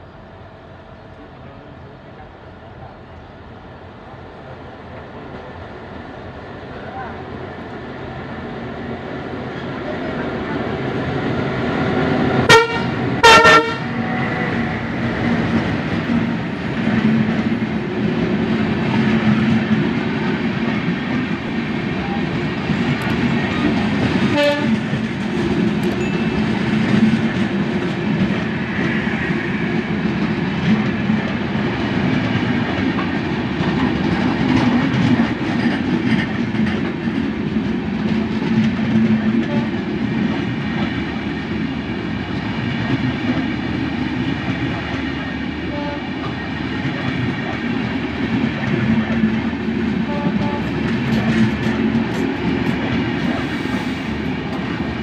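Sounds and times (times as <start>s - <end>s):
train rumble and wheel clatter: 0.0s - 55.0s
diesel locomotive horn blasts: 12.2s - 14.6s, 24.2s - 24.9s, 39.4s - 39.8s, 45.6s - 46.3s, 50.0s - 50.9s.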